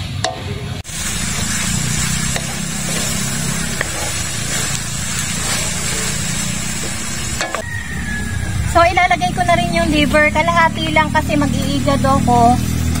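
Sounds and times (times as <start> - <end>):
meat sizzling in a wok: 0.8 - 8.8
low rumble: 0.8 - 13.0
wooden spoon scraping: 1.3 - 7.6.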